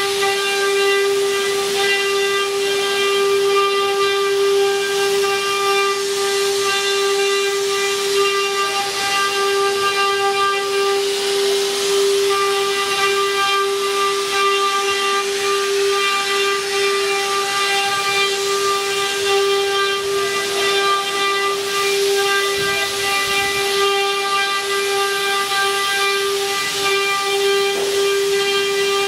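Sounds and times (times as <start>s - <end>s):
router spindles whining: 0.0s - 29.0s.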